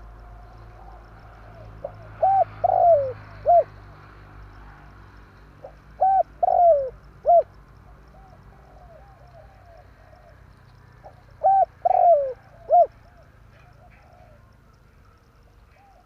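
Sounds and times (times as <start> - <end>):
dove cooing: 0.0 - 3.9, 5.6 - 14.6, 15.6 - 16.0.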